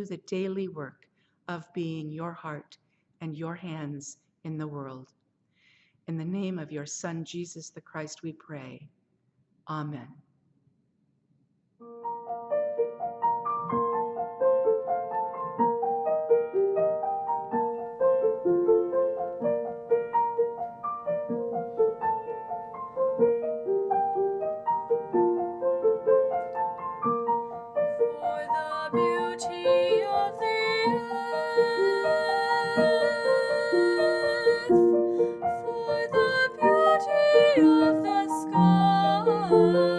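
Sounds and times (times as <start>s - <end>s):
solo piano playing: 11.8s - 39.9s.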